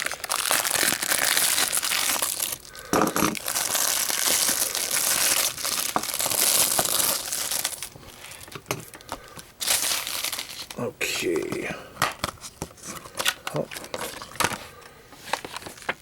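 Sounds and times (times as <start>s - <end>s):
plastic shrink-wrap crinkling: 0.0s - 10.8s, 15.2s - 16.0s.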